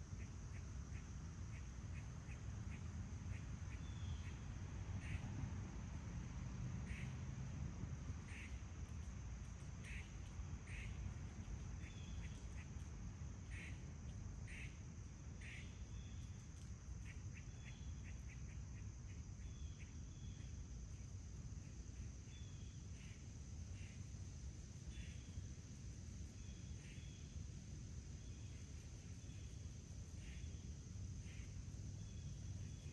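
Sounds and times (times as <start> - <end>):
low outdoor rumble: 0.0 - 19.6
high insect drone: 0.0 - 32.9
small birds chirping: 9.6 - 14.8.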